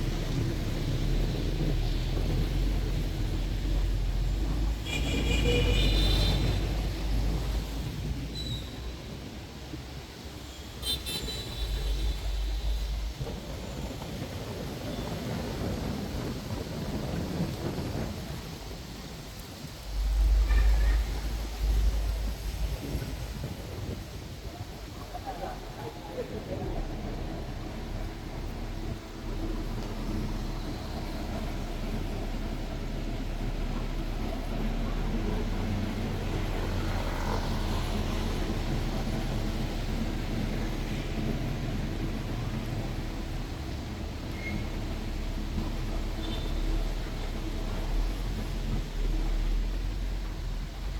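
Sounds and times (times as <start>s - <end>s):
bus engine droning: 0.0s - 50.9s
low traffic rumble: 0.0s - 50.9s
steady rain: 0.0s - 50.9s
wind noise: 0.0s - 50.9s.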